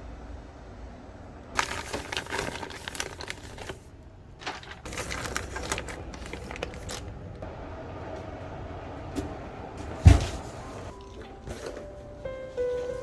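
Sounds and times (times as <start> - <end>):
packaging crinkling: 1.6 - 7.4.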